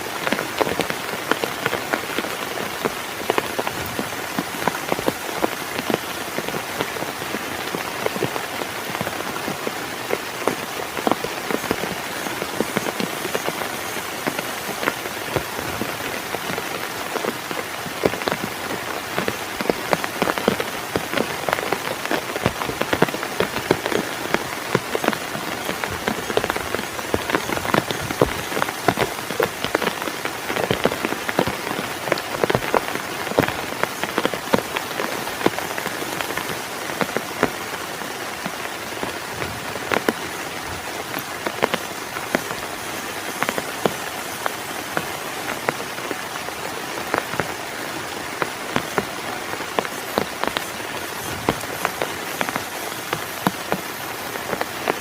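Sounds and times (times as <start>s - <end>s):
heavy rain hissing: 0.0s - 55.0s
large raindrops tapping surface: 0.0s - 55.0s.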